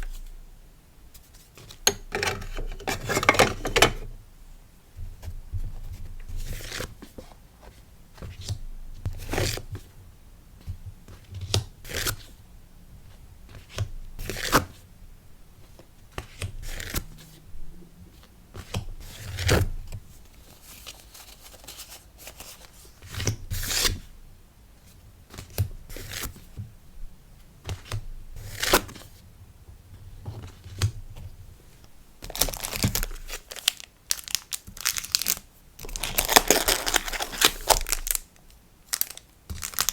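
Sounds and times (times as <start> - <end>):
packaging handled and crinkling: 1.2 - 4.1, 20.3 - 23.0, 31.8 - 39.9.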